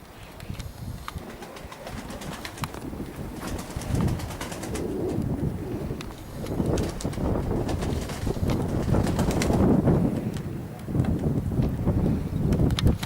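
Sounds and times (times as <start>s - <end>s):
wind rumbling on microphone: 0.0s - 13.0s
pigeons cooing: 1.2s - 7.7s.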